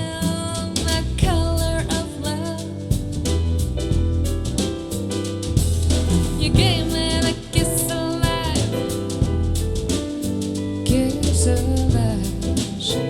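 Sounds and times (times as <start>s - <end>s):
deep bass line: 0.0s - 13.0s
drum kit: 0.0s - 13.0s
person singing with vibrato: 6.3s - 8.8s.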